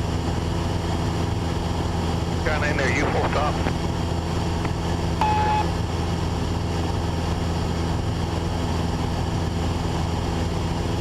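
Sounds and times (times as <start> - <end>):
propeller plane engine droning: 0.0 - 11.0
short beep: 5.2 - 5.7.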